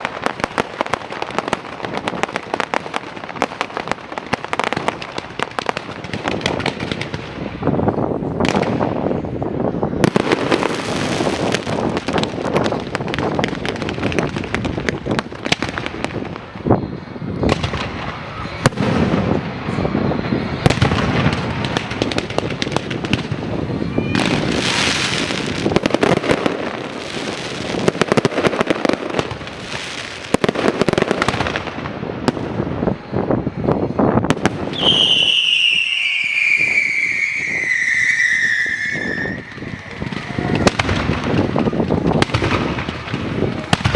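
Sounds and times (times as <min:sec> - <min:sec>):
fireworks bangs and crackling: 0:00.0 - 0:43.9
high falling whistle: 0:34.7 - 0:39.9.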